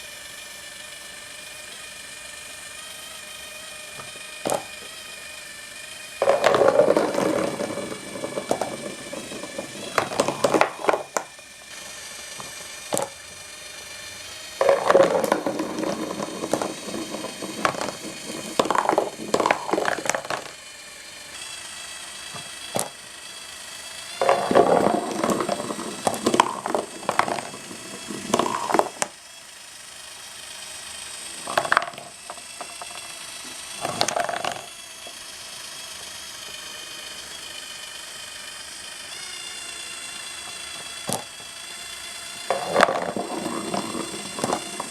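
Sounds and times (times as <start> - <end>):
small electric motor humming: 0.0 - 44.9
marbles rattling on cardboard tracks: 3.9 - 5.1, 6.0 - 21.3, 22.1 - 29.2, 30.4 - 37.3, 39.6 - 44.9.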